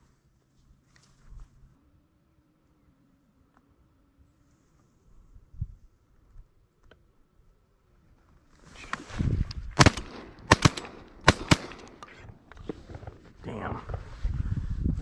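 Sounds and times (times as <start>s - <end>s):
shotguns firing: 9.8s - 12.4s.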